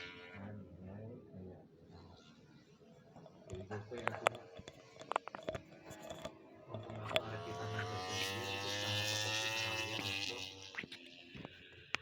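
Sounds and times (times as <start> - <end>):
motorcycle engine at high revs: 2.8 - 12.0.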